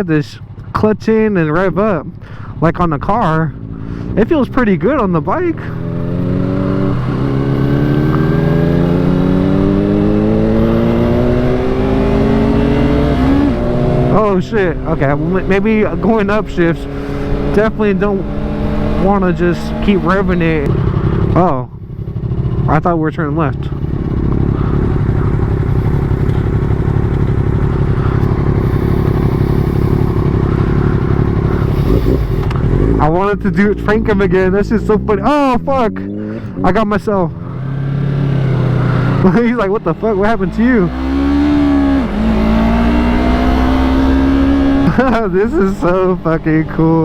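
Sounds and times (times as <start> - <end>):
motorcycle engine accelerating: 1.6 - 47.0.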